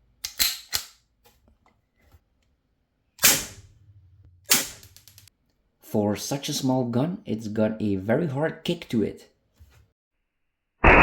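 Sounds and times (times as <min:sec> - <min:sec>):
air pistol shots: 0:03.2 - 0:03.6, 0:04.5 - 0:04.8.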